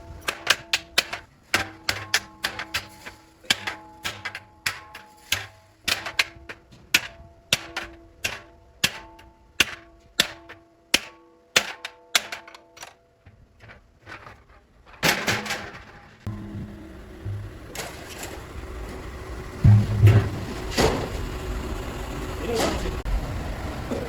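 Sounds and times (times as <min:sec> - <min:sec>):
hammer striking metal pot: 0:00.2 - 0:12.6.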